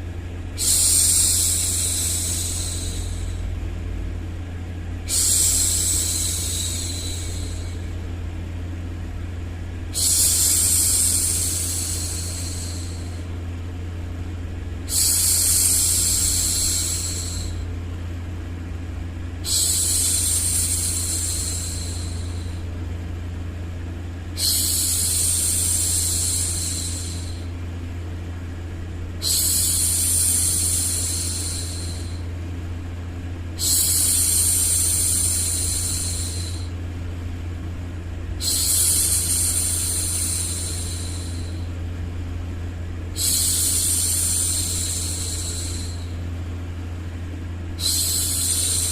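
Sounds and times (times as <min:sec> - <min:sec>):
low background drone: 0:00.0 - 0:48.9.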